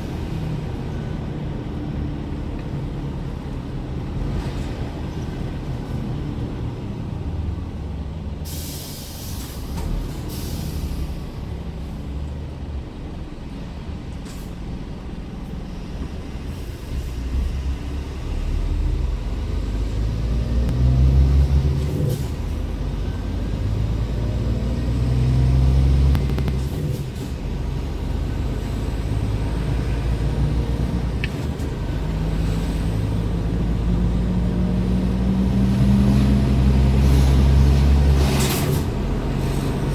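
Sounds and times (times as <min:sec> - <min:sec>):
truck diesel engine droning: 0:00.0 - 0:39.9
air brake hiss: 0:08.4 - 0:11.4.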